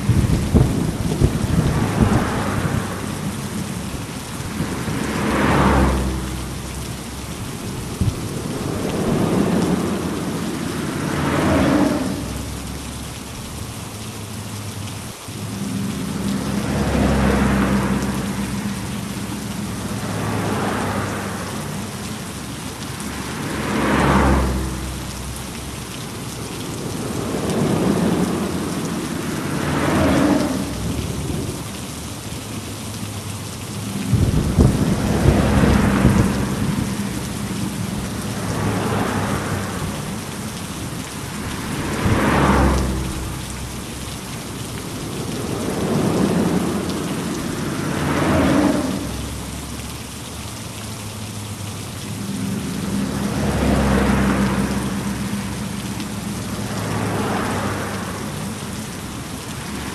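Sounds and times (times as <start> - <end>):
thunder rumbling: 0.0 - 3.9, 33.7 - 40.4
heavy rain: 0.0 - 59.9.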